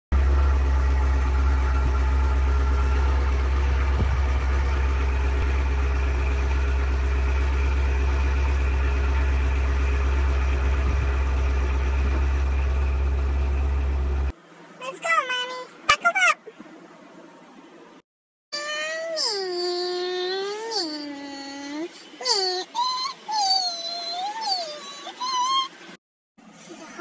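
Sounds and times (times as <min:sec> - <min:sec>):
car engine idling: 0:00.1 - 0:14.3.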